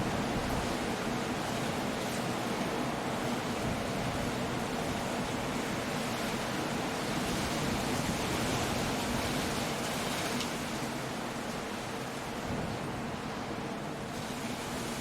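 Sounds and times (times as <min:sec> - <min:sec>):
rain: 0:00.0 - 0:15.0
wind: 0:00.0 - 0:15.0.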